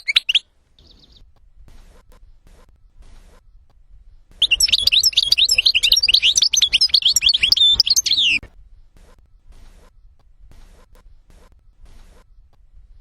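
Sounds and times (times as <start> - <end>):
finch twittering song: 0.0 - 1.2, 4.4 - 8.5.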